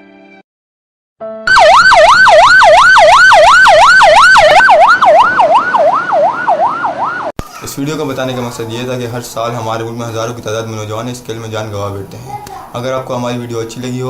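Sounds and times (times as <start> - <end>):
siren yelping: 1.5 - 7.3.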